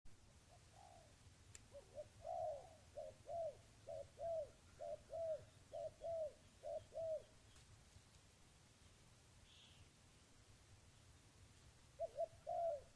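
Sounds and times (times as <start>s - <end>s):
dove cooing: 0.5s - 7.4s, 11.9s - 12.9s.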